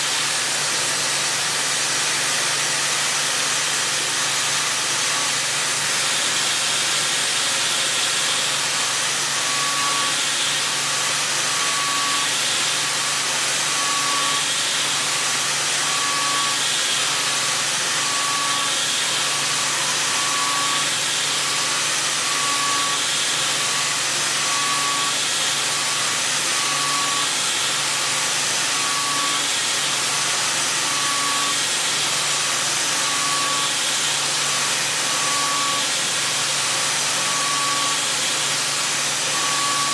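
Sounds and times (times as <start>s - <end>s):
milling machine hissing: 3.0s - 39.9s.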